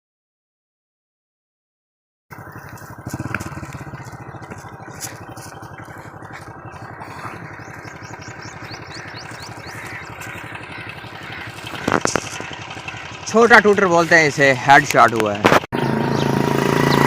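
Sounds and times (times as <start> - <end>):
bird chirping: 2.3 - 14.5, 15.8 - 17.0
engine running steadily: 2.3 - 17.0.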